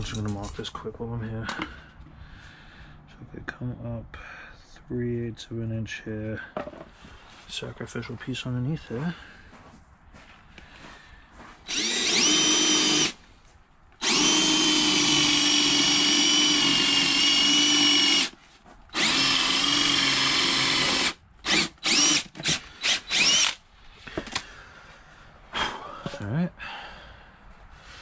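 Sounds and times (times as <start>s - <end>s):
cordless drill boring through wood: 11.7s - 13.2s, 14.0s - 23.6s.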